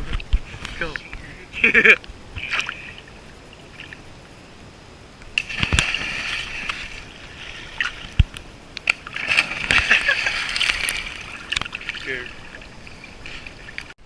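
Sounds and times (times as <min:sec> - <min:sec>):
water splashing off paddles: 0:05.3 - 0:14.0.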